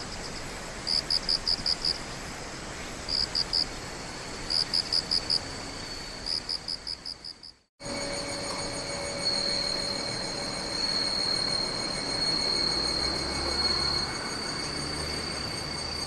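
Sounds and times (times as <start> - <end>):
cricket chirping: 0.0 - 16.0
night ambience hiss: 0.0 - 16.0
faint continuous trill: 7.5 - 16.0.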